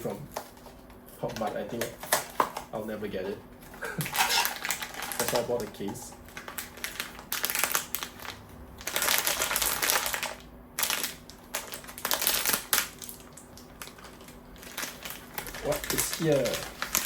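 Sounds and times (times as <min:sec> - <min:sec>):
cardboard and wrapper tearing: 0:04.1 - 0:05.7, 0:06.4 - 0:13.2, 0:13.8 - 0:17.0.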